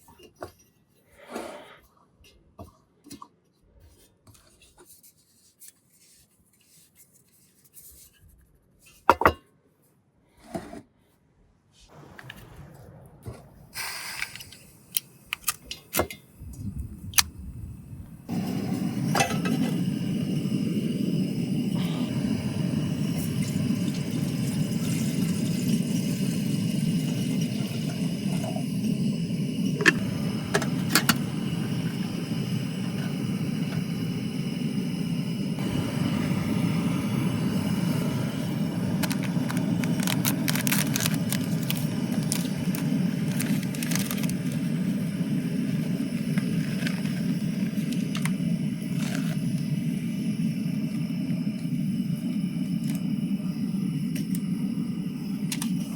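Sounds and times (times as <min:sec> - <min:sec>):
low rumbling noise: 0:11.8 - 0:55.9.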